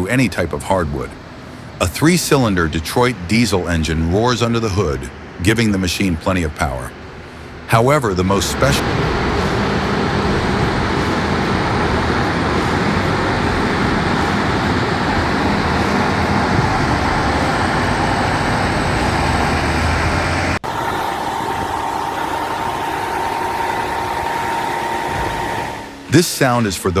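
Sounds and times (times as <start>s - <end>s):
diesel engine hum: 0.0s - 26.2s
machine whine: 7.9s - 26.2s
sawmill running: 8.0s - 26.1s.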